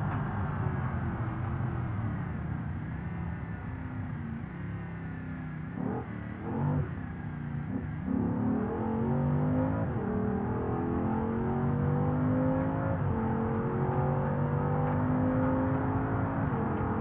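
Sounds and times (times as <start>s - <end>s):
car engine accelerating: 5.6s - 17.0s.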